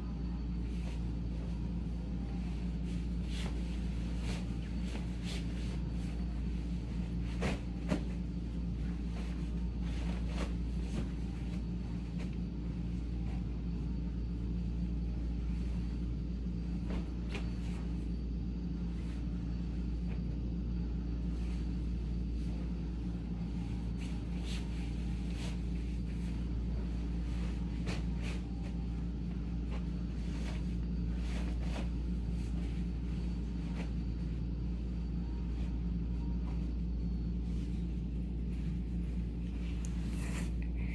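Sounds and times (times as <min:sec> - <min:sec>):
bedding rustles and knocks: 0:00.7 - 0:12.4, 0:23.6 - 0:34.1.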